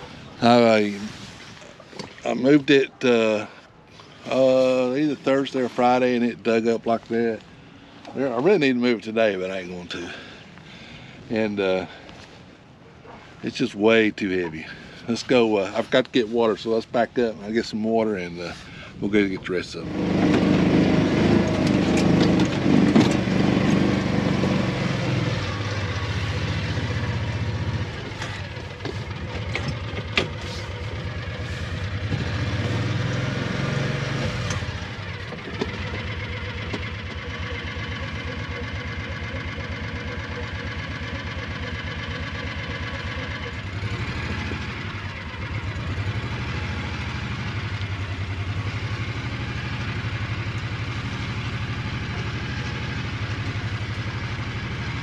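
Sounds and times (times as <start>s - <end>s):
small vehicle engine running: 19.4s - 55.0s.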